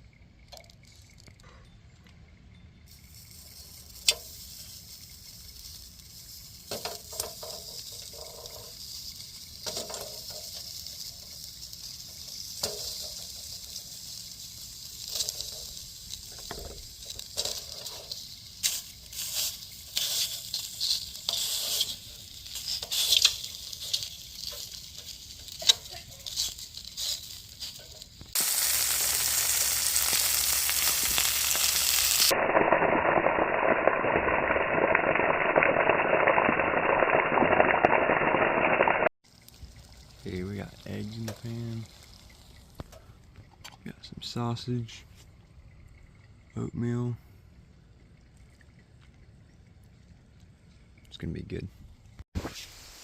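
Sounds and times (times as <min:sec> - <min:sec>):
utensil stirring clicks: 0:02.9 - 0:28.4
loud steady hiss: 0:02.9 - 0:32.4, 0:52.4 - 0:53.0
food sizzling in a pan: 0:02.9 - 0:43.0, 0:52.4 - 0:53.0.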